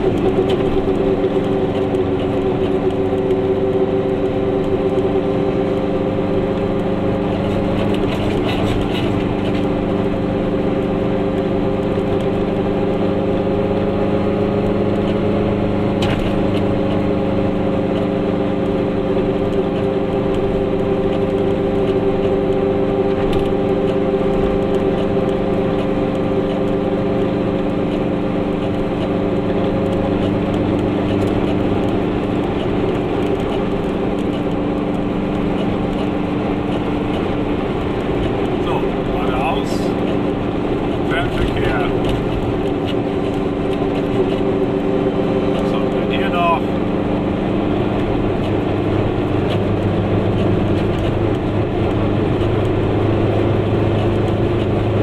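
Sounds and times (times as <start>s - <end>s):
road noise: 0.0s - 55.0s
two-stroke car engine running: 0.0s - 55.0s.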